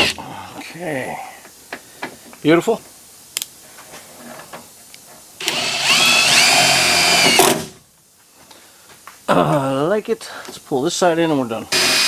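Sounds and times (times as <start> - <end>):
power drill motor whine: 5.4 - 7.7, 11.7 - 12.0.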